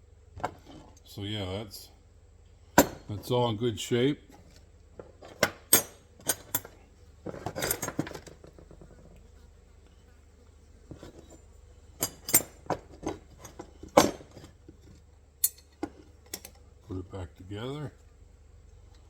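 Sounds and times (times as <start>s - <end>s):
steel trap parts clanking: 5.1s - 8.4s, 12.0s - 14.6s, 15.4s - 16.6s.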